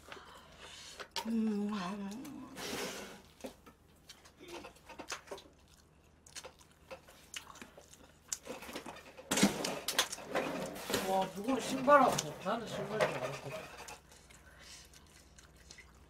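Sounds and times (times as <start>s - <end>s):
person chewing chicken: 3.2s - 9.0s, 13.9s - 16.0s.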